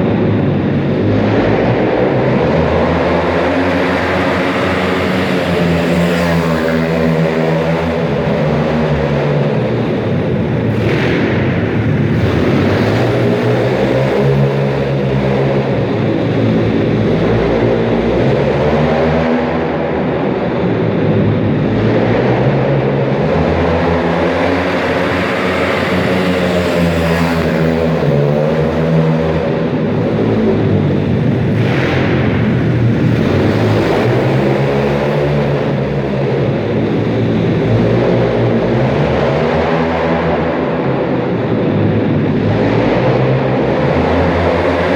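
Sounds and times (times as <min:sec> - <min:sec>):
pit bike engine revving: 0:21.4 - 0:40.6.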